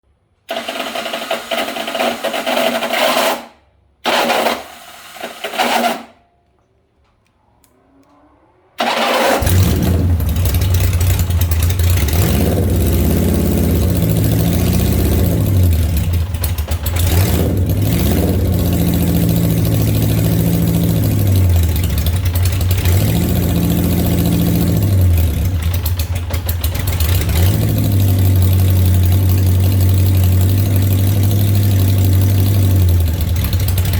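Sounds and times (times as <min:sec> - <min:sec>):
engine cranking: 0:08.8 - 0:33.9
engine running and idling: 0:08.8 - 0:33.9.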